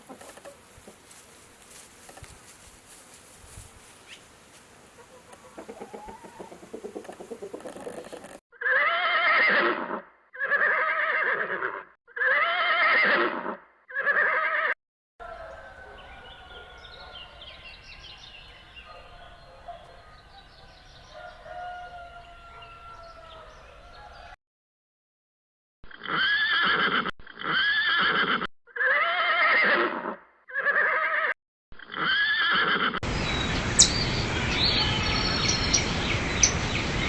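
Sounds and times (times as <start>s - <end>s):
horse whinnying: 8.6s - 14.7s.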